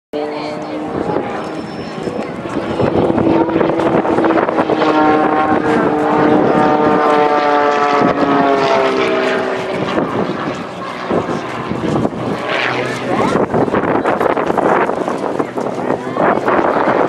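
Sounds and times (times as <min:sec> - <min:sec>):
airplane flying past: 0:00.2 - 0:17.0.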